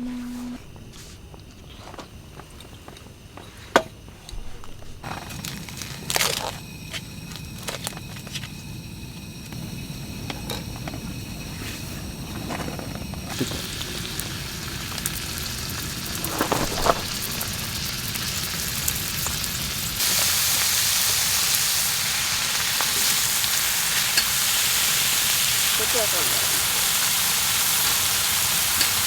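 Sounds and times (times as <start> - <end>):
steady hiss: 0.0 - 29.0
campfire crackling and popping: 13.2 - 21.6.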